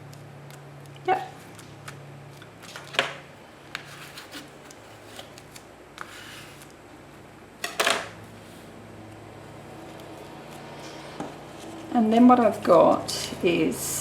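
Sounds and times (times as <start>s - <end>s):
paper rustle: 3.7s - 6.8s.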